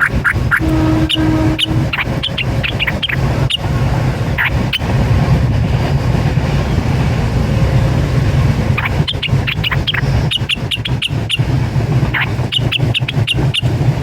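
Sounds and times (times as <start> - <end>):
high bird chirps: 0.0 - 3.7, 4.3 - 4.8, 8.8 - 11.5, 12.1 - 13.7
steady low rumble: 0.0 - 14.0.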